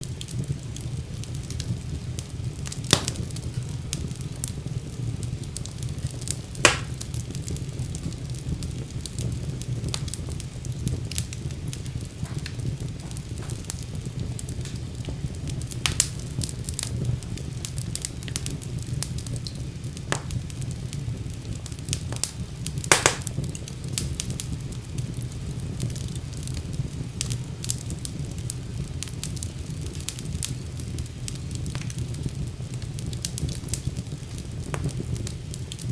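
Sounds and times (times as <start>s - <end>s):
wood fire crackling: 0.0s - 35.9s.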